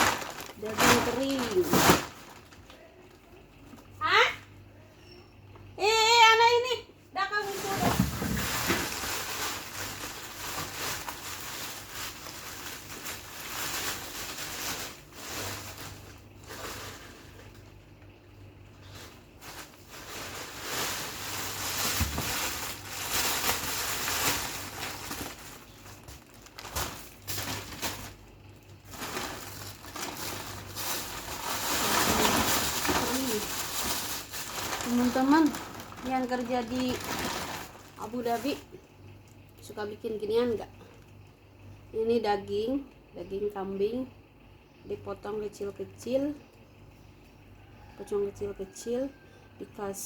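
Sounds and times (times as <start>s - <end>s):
plastic bags rustling: 0.0s - 3.4s, 7.2s - 17.8s, 18.8s - 38.8s.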